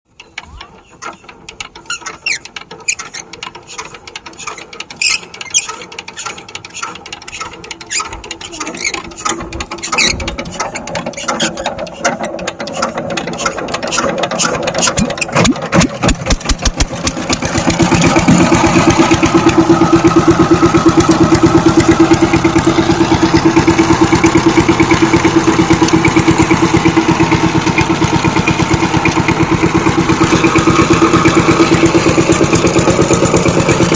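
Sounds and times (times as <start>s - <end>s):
diesel engine starting and running: 0.1s - 33.9s.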